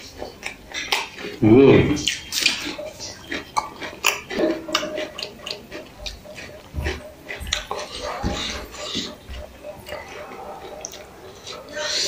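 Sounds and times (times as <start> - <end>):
wet mouth clicks: 0.0 - 1.4, 2.0 - 11.5
man crunching raw onion: 0.0 - 8.6.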